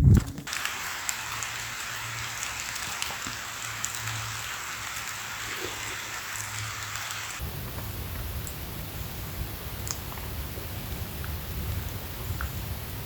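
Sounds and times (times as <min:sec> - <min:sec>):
light rain falling: 0:00.1 - 0:13.0.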